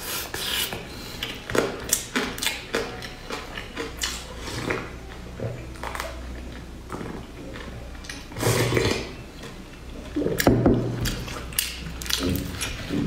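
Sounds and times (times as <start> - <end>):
wet chewing clicks: 1.2 - 4.9.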